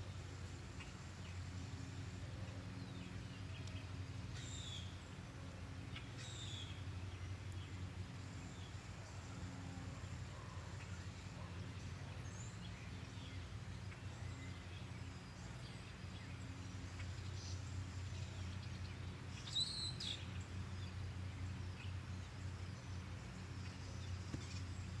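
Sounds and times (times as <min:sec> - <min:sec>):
low outdoor rumble: 0:00.0 - 0:25.0
small bird chirp: 0:05.9 - 0:07.8, 0:10.3 - 0:21.0.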